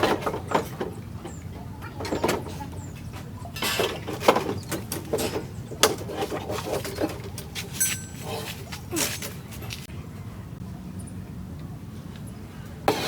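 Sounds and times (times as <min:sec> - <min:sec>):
clicks and knocks on metal: 0:00.0 - 0:08.2.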